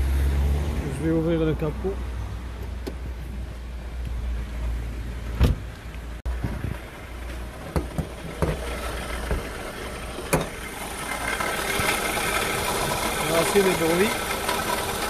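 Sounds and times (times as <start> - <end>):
diesel engine idling: 6.0 - 15.0
sharp knocks and clunks: 7.6 - 9.5, 10.3 - 10.6.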